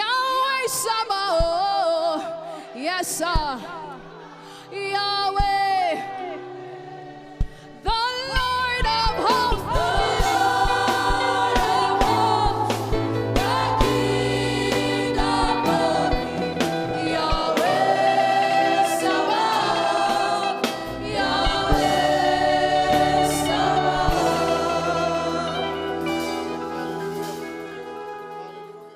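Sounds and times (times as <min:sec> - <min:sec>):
group singing gospel song: 0:02.8 - 0:28.6
live band playing: 0:08.4 - 0:28.9.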